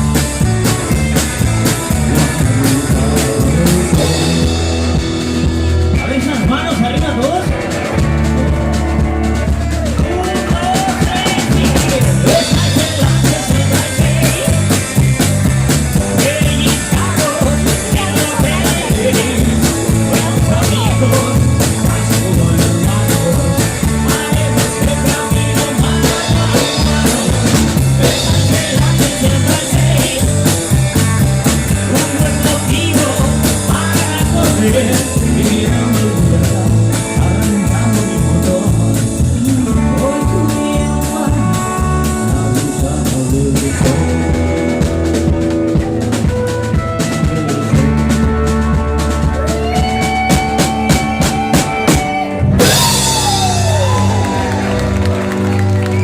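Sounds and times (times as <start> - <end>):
drums and bass beat: 0.0 - 56.0
live rock band playing: 0.0 - 56.0.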